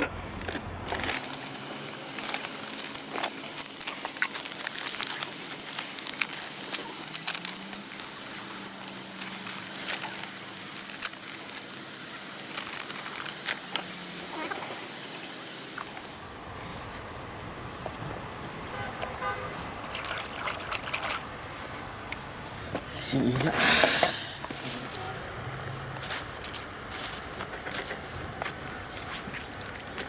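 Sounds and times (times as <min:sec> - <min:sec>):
plastic bag crinkling: 0:00.0 - 0:14.8, 0:24.3 - 0:30.0.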